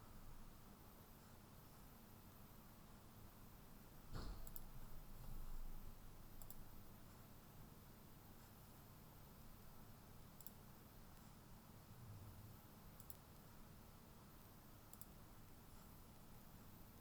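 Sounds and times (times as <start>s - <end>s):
low room hum: 0.0s - 17.0s
computer mouse clicks: 4.2s - 4.7s, 6.4s - 6.7s, 10.4s - 11.3s, 13.0s - 13.5s, 14.9s - 15.2s.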